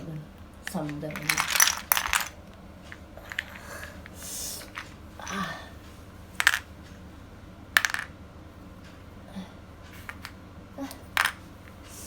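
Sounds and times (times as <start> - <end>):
plastic toy bricks clattering: 0.6 - 2.4.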